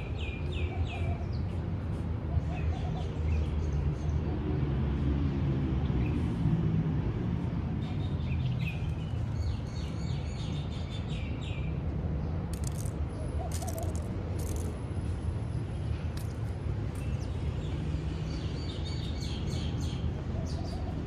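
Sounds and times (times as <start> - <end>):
birds chirping: 7.8 - 14.7.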